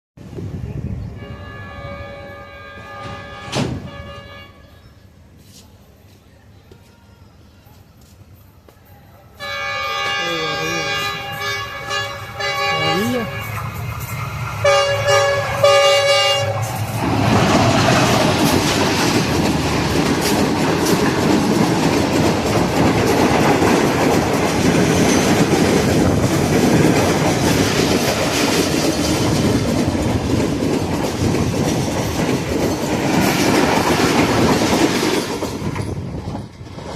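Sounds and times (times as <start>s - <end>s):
train horn: 1.0s - 5.0s, 9.4s - 13.7s, 14.6s - 16.8s
train wheels rattling on track: 1.3s - 4.5s, 8.1s - 36.9s.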